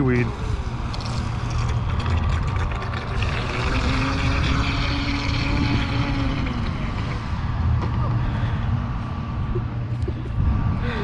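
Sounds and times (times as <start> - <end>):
low rumbling noise: 0.0 - 11.0
electric motor whine: 3.1 - 7.3.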